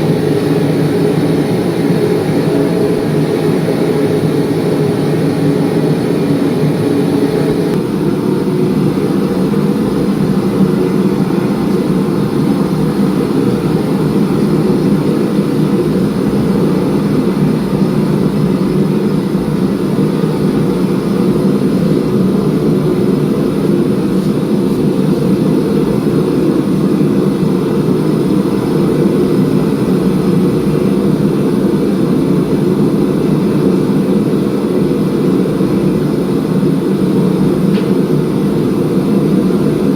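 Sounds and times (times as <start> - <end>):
machinery drone: 0.0 - 30.3.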